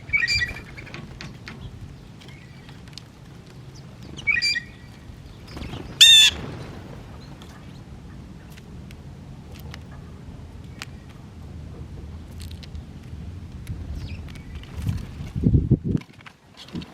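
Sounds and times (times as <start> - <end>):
bird call: 0.0 - 1.0, 4.1 - 6.7
harsh bird squawk: 4.2 - 4.9, 6.0 - 6.4.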